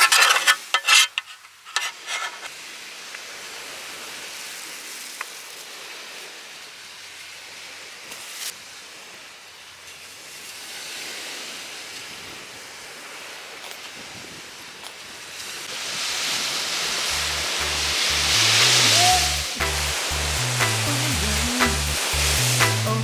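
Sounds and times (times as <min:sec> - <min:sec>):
surf washing onto shore: 0:15.6 - 0:23.0.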